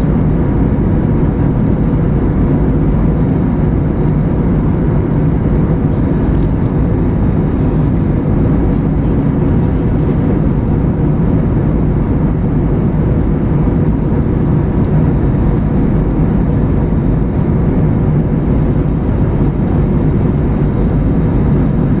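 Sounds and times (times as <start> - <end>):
faint steady hum: 0.0 - 22.0
jet airliner cabin drone: 0.0 - 22.0.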